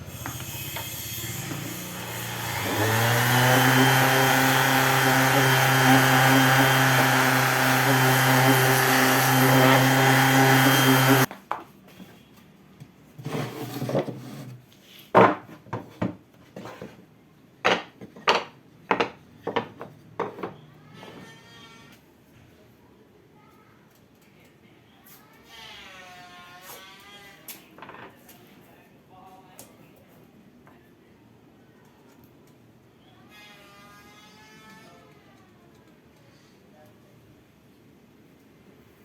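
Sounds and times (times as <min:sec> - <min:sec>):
power tool running on wood: 0:00.0 - 0:11.3.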